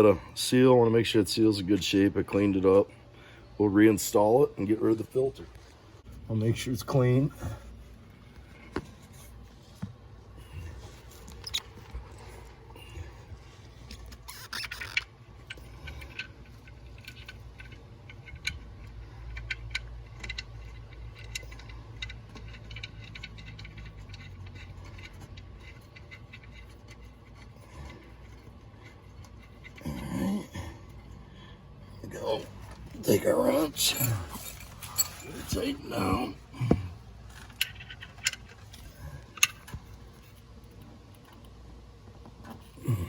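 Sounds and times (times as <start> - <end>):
steady low hum: 0.0 - 43.0
small clicks and light scrapes: 13.3 - 29.8, 37.2 - 42.7
scraping rustle: 32.1 - 40.5.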